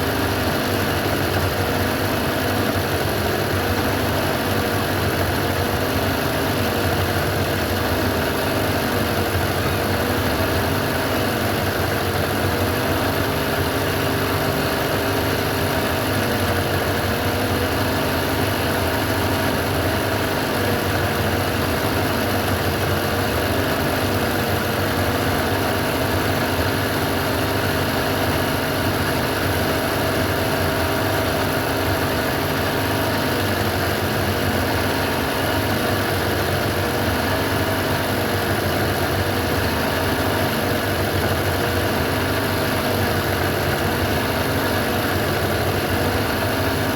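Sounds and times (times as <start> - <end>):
sewing machine running: 0.0 - 46.9.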